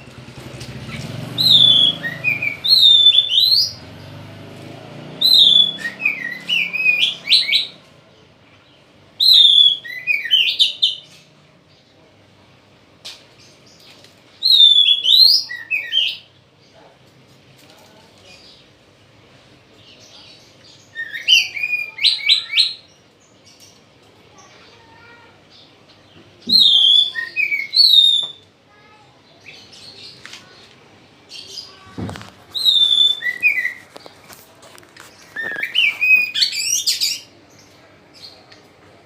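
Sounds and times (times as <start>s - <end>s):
bird singing whistled phrases: 1.4s - 3.8s, 5.2s - 7.8s, 9.2s - 11.0s, 14.4s - 16.2s, 20.9s - 22.9s, 26.4s - 28.5s, 32.5s - 33.8s, 35.4s - 37.3s.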